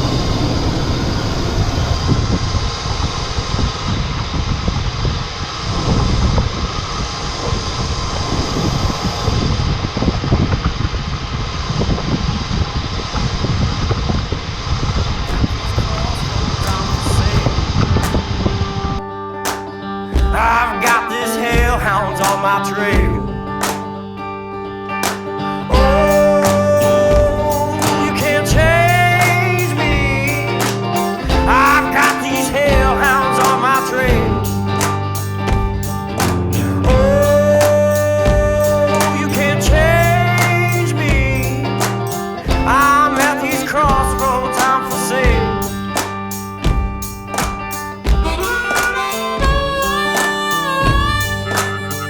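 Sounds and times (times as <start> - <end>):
person singing: 15.3 - 17.8, 20.1 - 23.6, 25.3 - 35.4, 36.1 - 45.9, 48.2 - 52.0
blues guitar with steady beat: 15.3 - 52.0
truck engine rumble: 34.1 - 43.0.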